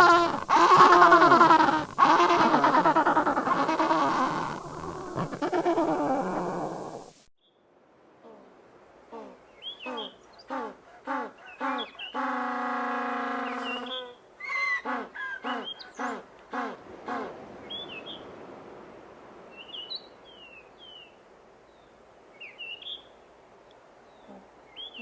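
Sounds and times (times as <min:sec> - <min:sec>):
penguin braying call: 0:00.0 - 0:04.6.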